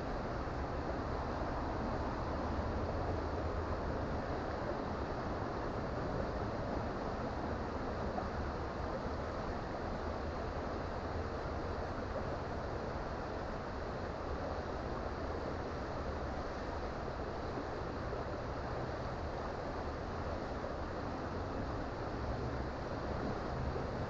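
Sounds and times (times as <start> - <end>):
creek water flowing: 0.0 - 24.0.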